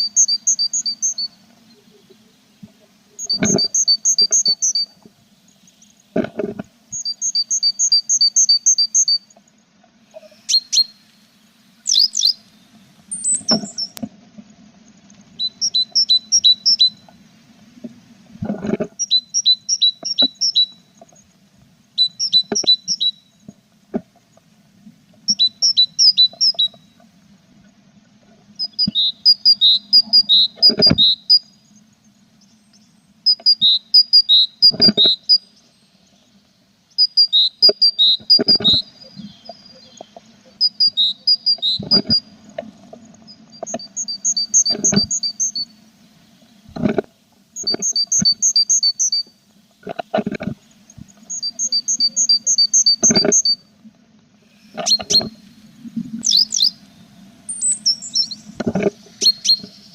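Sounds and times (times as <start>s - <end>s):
faint steady hum: 0.0s - 59.9s
nestlings chirping: 11.8s - 12.4s, 15.4s - 17.0s, 19.0s - 20.8s, 22.0s - 23.2s, 25.3s - 26.8s, 36.9s - 42.2s, 43.3s - 45.7s, 47.6s - 49.3s, 50.9s - 53.6s, 54.5s - 55.6s, 56.2s - 56.9s, 57.5s - 59.9s.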